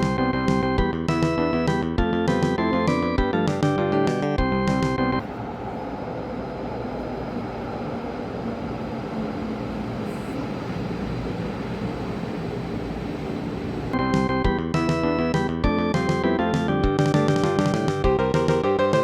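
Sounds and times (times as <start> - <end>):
background music: 0.0 - 5.2, 14.0 - 19.0
train wheels rumbling on rail: 4.9 - 14.7.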